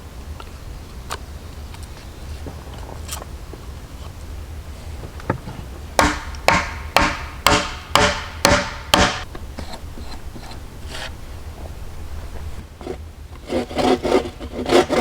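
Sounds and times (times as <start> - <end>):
hand tool striking wood: 6.0 - 10.6.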